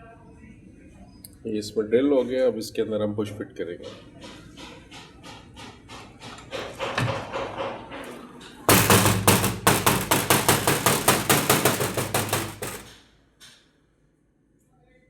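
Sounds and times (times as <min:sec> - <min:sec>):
rapid regular knocking: 0:06.6 - 0:13.0.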